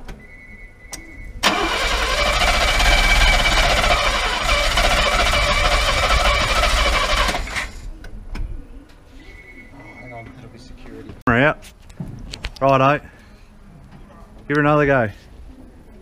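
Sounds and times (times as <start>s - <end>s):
car engine starting and running roughly: 1.4s - 7.8s.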